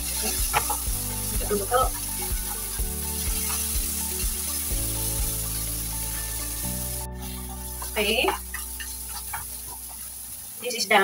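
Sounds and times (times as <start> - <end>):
vegetables sizzling in a frying pan: 0.0 - 11.0
spatula tapping and scraping pan: 0.3 - 0.9, 7.6 - 10.0.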